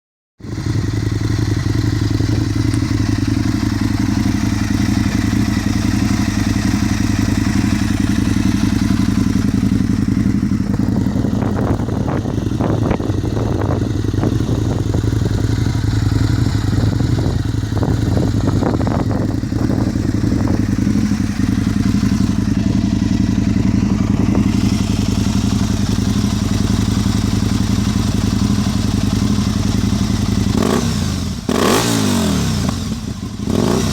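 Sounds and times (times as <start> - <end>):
motorcycle engine idling: 0.4 - 33.9.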